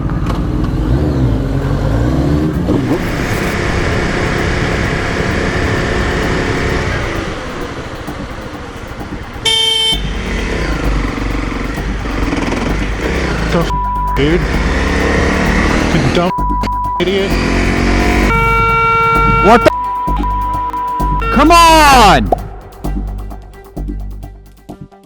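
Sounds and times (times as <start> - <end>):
horn blast: 1.6 - 7.8, 9.4 - 11.0, 13.2 - 22.7.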